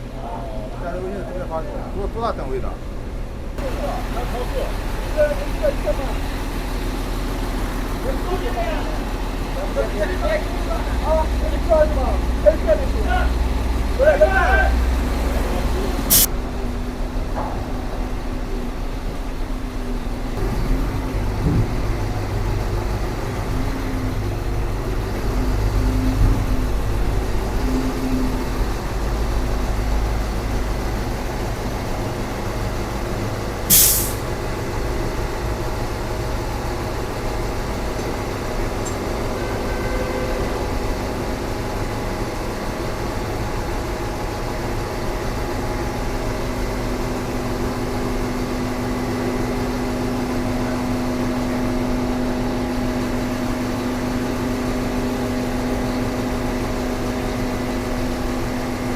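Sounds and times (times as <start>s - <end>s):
diesel machinery engine rumbling: 0.0s - 58.9s
short burst of air hiss: 33.7s - 34.2s.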